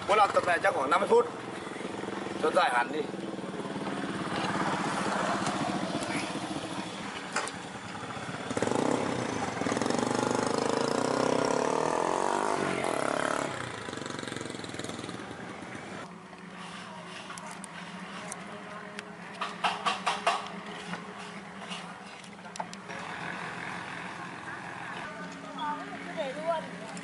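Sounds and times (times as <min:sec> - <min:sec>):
small engine running: 0:00.0 - 0:18.6, 0:19.4 - 0:27.0.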